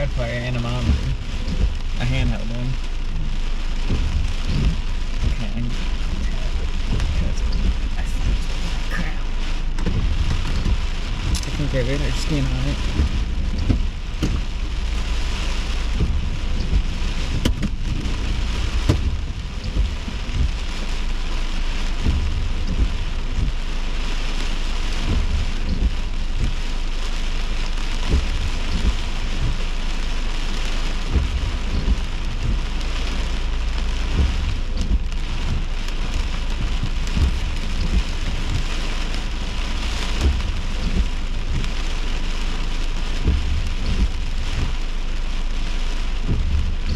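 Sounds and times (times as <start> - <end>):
deep rumble: 0.0 - 46.9
heavy rain pouring: 0.0 - 46.9.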